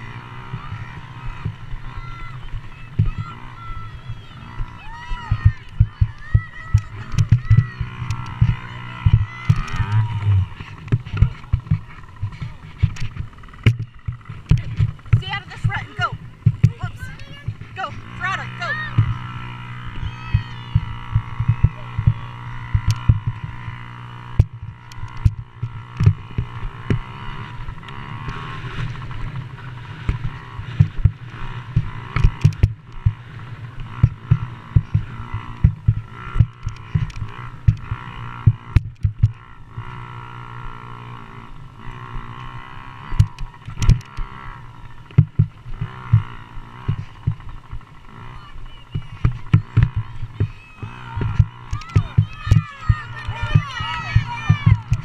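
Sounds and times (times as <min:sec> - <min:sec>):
dirt bike engines revving: 0:00.0 - 0:55.0
sharp low thumps: 0:04.6 - 0:23.6.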